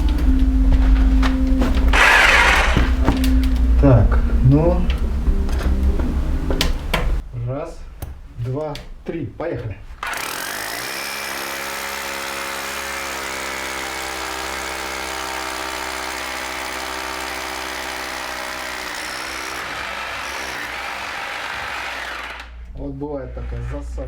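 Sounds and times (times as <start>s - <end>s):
electric drill boring into brick: 1.6s - 3.4s, 10.0s - 22.6s.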